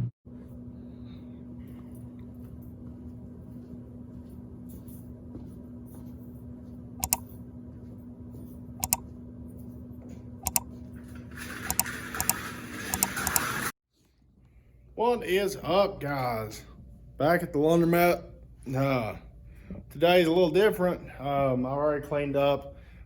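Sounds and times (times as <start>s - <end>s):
machine hum: 0.0s - 13.7s
sharp clicks: 7.0s - 7.2s, 8.8s - 9.0s, 10.4s - 10.6s.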